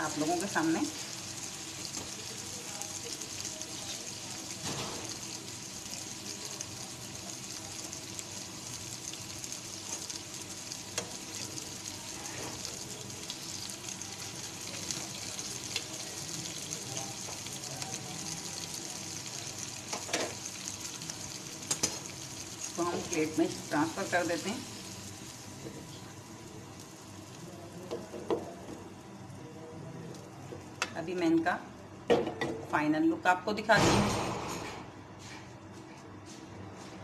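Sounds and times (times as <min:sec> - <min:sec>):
chillies sizzling in oil: 0:00.0 - 0:29.0.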